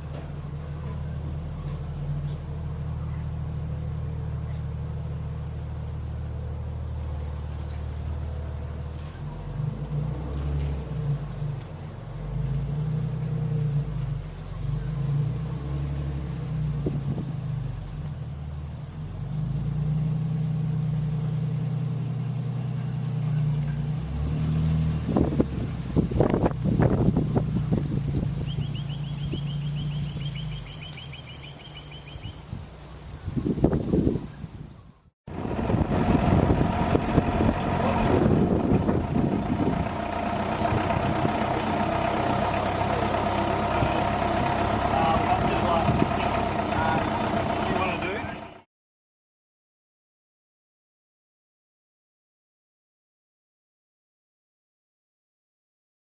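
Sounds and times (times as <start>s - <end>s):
vehicle engine droning: 0.0s - 48.7s
wind buffeting microphone: 16.7s - 17.5s, 24.9s - 41.7s.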